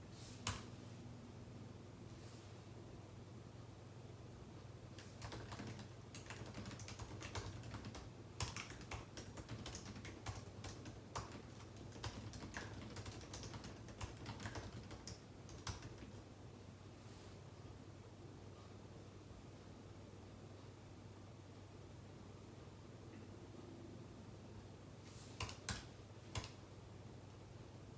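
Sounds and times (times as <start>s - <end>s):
faint low hum: 0.0s - 27.9s
keyboard keystroke clicks: 25.4s - 26.6s.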